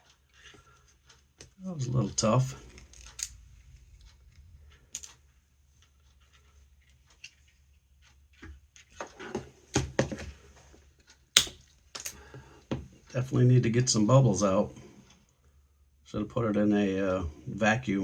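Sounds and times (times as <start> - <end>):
rustling and scraping: 0.4 - 10.9
sharp clicks: 11.4 - 11.6.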